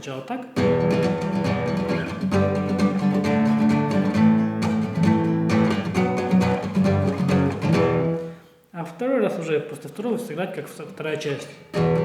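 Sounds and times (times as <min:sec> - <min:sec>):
acoustic guitar strumming chords: 0:00.6 - 0:08.5, 0:11.7 - 0:12.0.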